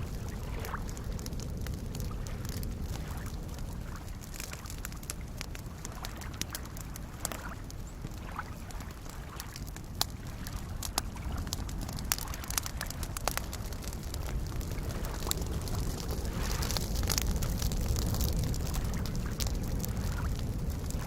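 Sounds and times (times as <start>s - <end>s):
lake waves lapping: 0.0s - 21.0s
sharp fire pops: 0.0s - 21.0s
wood campfire crackling: 0.0s - 21.0s.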